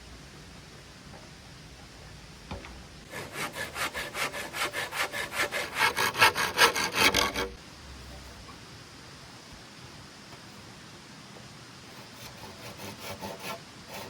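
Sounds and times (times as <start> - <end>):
hand saw cutting: 3.1 - 7.6, 11.9 - 14.0.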